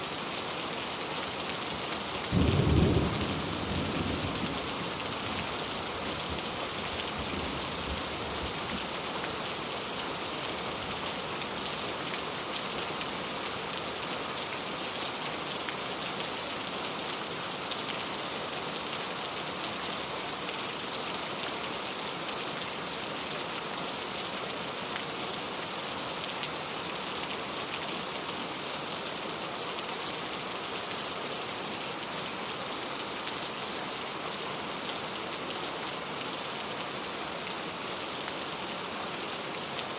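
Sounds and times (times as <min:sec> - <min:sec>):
rain pattering on a surface: 0:00.1 - 0:39.9
low thunder rumble: 0:02.4 - 0:05.0.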